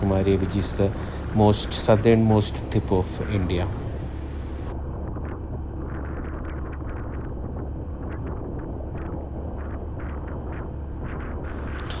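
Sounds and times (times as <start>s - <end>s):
raindrops ticking: 0.0s - 4.7s
wind rumble on microphone: 0.0s - 12.0s.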